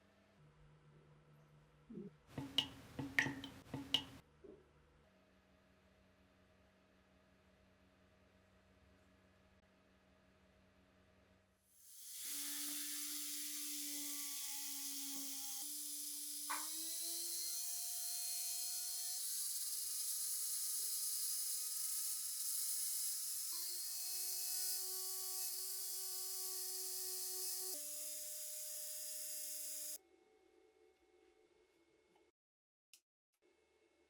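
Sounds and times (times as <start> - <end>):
power tool motor whirring: 11.9 - 30.0.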